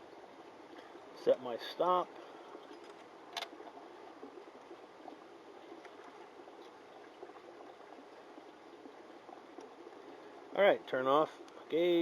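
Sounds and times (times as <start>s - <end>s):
faint ticks: 2.1s - 10.5s, 11.3s - 11.8s.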